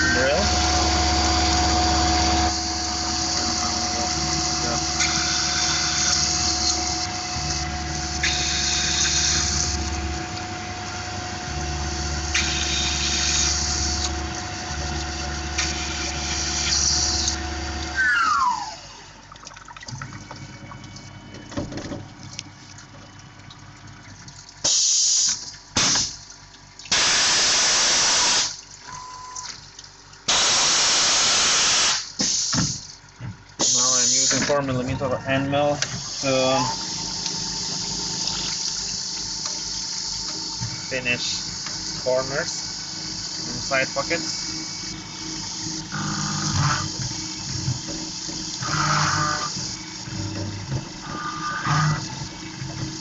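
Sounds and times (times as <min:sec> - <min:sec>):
mill spindle whining: 0:00.0 - 0:23.3, 0:32.1 - 0:53.0
loud hissing blasts: 0:26.9 - 0:28.6, 0:30.3 - 0:32.8.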